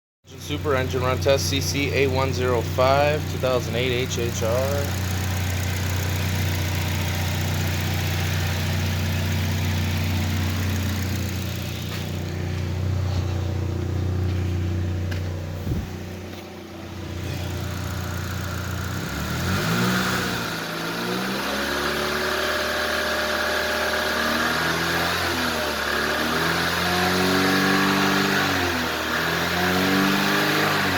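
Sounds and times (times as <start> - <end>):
car engine idling and revving: 0.3 - 30.9.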